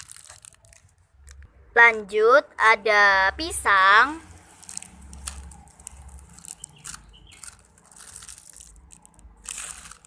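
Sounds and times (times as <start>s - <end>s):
foam toy squeezed crackling: 0.0s - 1.4s, 4.2s - 10.0s.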